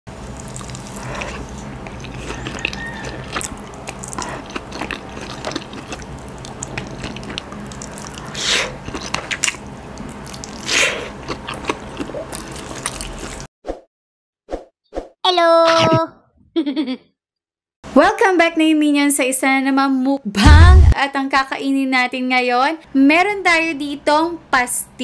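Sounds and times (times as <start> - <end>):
low steady hum: 0.1 - 13.4, 20.3 - 21.0
wet chewing and lip smacks: 0.3 - 13.5.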